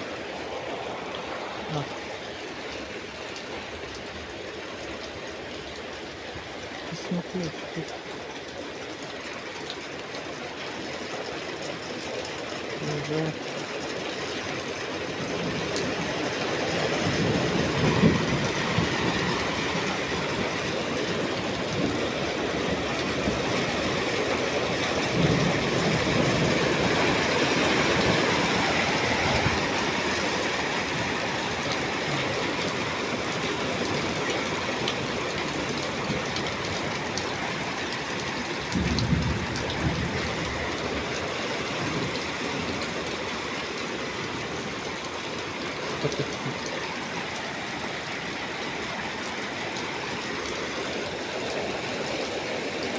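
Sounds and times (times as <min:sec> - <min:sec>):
heavy rain pouring: 0:00.0 - 0:52.9
wind gusts on microphone: 0:16.8 - 0:20.4.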